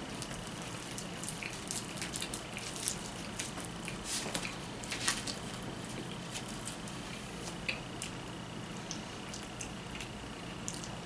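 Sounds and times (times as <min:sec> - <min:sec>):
people chewing: 0:00.2 - 0:08.2.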